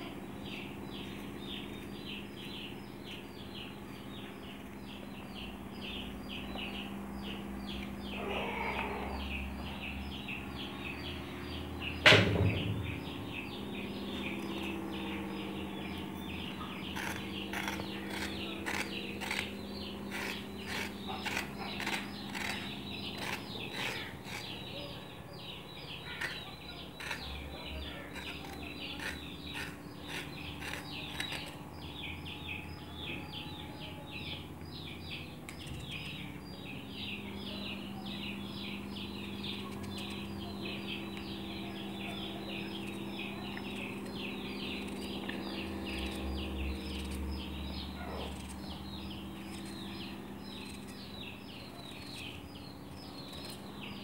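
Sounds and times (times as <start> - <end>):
small birds chirping: 0.0 - 54.0
steady low hum: 0.0 - 54.0
loud knock: 12.0 - 13.0.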